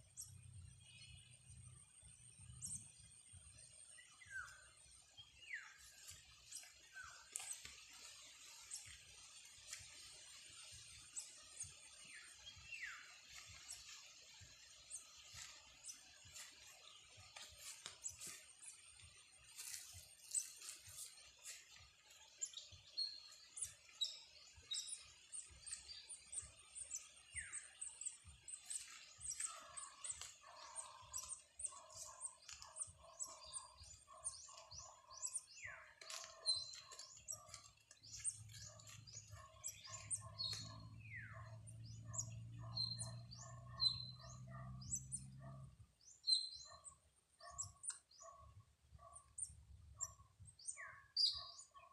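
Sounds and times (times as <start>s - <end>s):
lower repeated bird calls: 22.3s - 51.9s.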